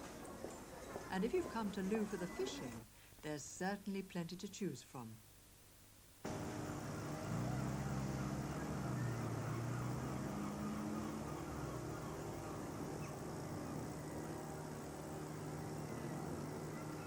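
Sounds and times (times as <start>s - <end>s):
boat engine humming: 6.2s - 17.0s.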